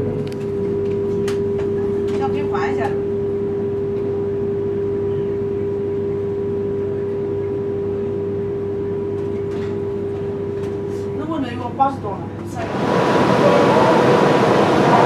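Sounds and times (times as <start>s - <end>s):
train carriage hum and rumble: 0.0s - 15.0s
steady mid-pitched tone: 12.7s - 15.0s.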